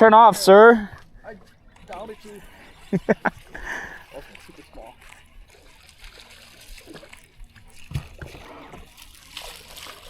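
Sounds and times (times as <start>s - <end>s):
water sloshing against boat: 0.0s - 10.0s
low knock on boat: 7.8s - 8.5s.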